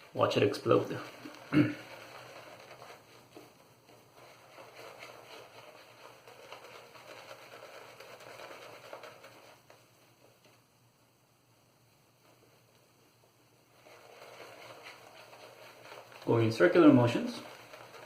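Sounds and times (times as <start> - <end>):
shaving brush crackling in lather: 0.0 - 9.8, 13.8 - 18.0.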